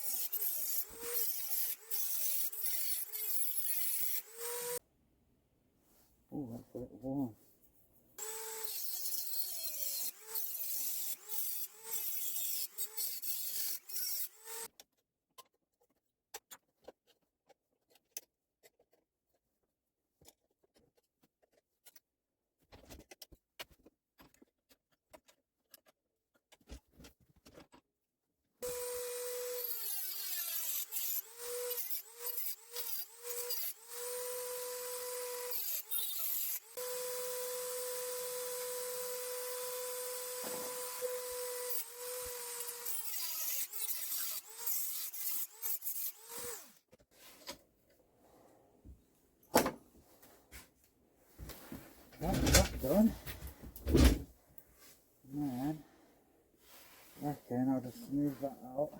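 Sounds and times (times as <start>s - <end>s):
rotary tool cutting metal: 0.0s - 4.8s, 8.2s - 14.7s, 28.6s - 46.8s.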